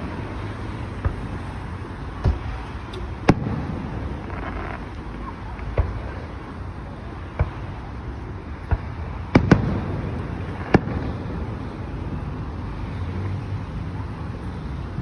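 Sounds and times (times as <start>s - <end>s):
low rumbling echo: 0.0s - 7.9s
fireworks bangs: 0.0s - 11.9s.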